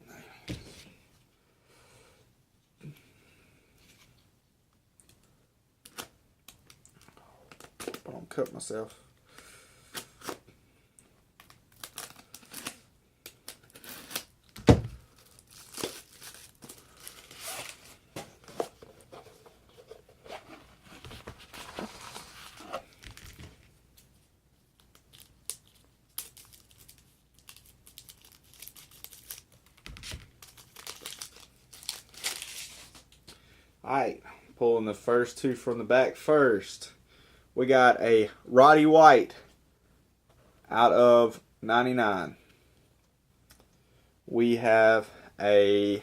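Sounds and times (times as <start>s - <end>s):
packaging tearing and crinkling: 11.4s - 12.8s, 13.4s - 17.9s, 24.8s - 33.0s.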